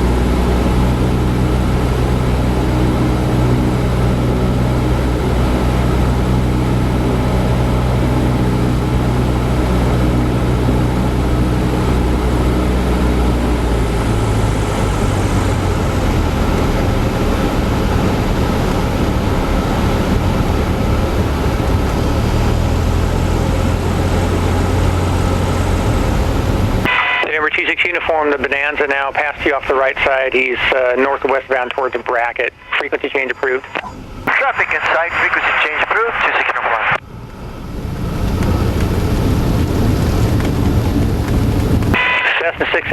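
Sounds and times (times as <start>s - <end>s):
propeller plane engine from cabin: 0.0s - 27.0s, 28.2s - 42.9s.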